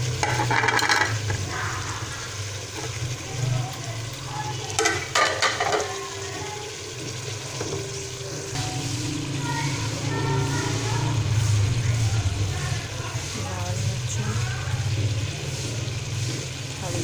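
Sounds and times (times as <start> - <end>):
food sizzling in oil: 0.0 - 17.0
metal spoon scraping a pan: 0.1 - 1.4, 4.8 - 6.0.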